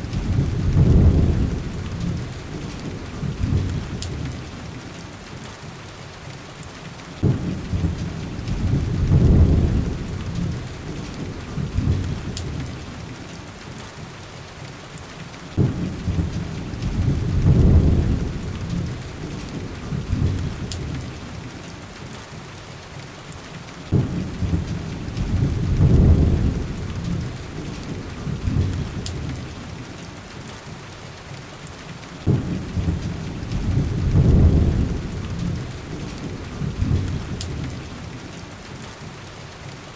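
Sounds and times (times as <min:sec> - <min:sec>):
thunder rumbles: 0:00.0 - 0:04.8, 0:07.2 - 0:13.2, 0:15.6 - 0:21.5, 0:23.9 - 0:29.9, 0:32.2 - 0:38.3
heavy rain: 0:00.0 - 0:39.9.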